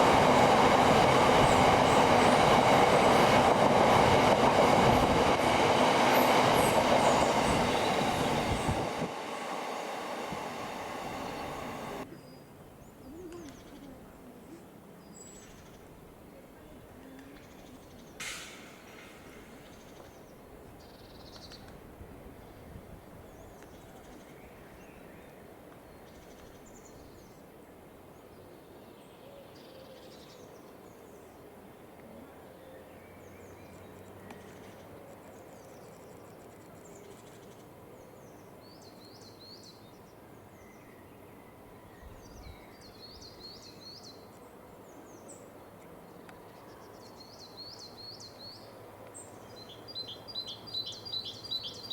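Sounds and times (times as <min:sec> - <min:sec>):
small birds chirping: 0:42.0 - 0:51.9.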